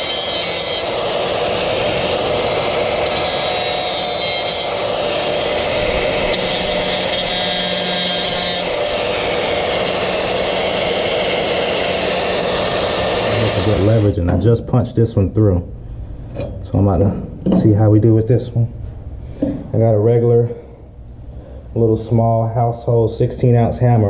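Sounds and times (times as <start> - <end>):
angle grinder grinding metal: 0.0 - 14.2.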